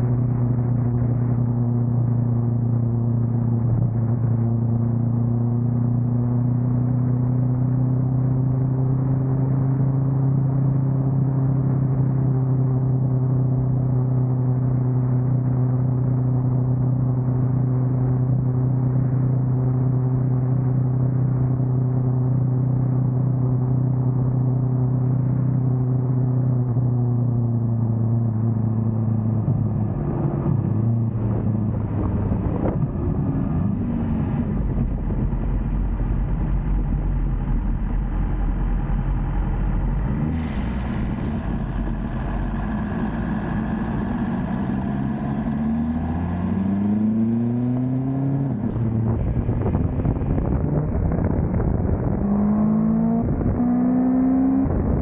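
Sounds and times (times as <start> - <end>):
motorcycle engine revving: 28.3 - 55.0.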